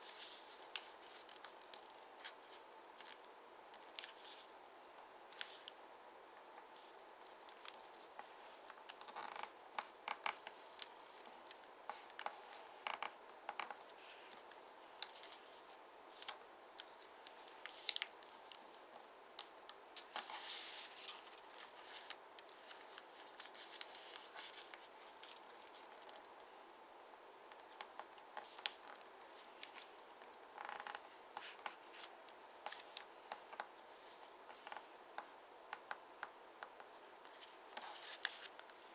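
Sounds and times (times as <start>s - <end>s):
paper being folded: 6.7s - 18.8s, 19.4s - 26.3s, 30.6s - 34.9s.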